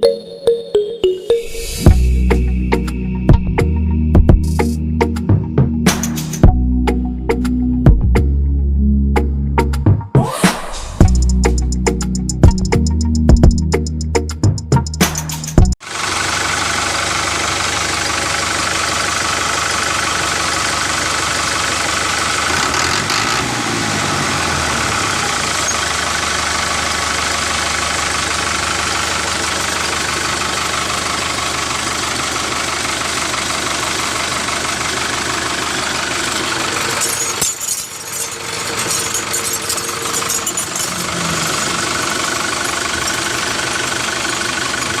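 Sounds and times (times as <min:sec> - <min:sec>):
tractor engine knocking hum: 0:15.6 - 0:23.4, 0:24.9 - 0:37.2, 0:38.4 - 0:45.0.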